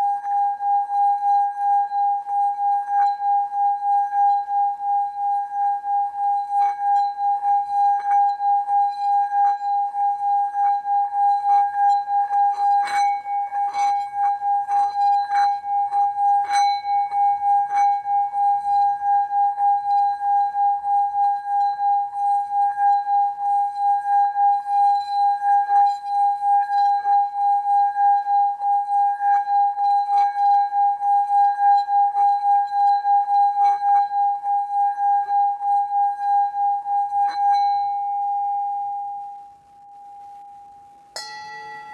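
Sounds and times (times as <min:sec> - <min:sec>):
singing bowl ringing: 0:00.0 - 0:41.9
mallet ticking against rim: 0:41.2 - 0:41.9.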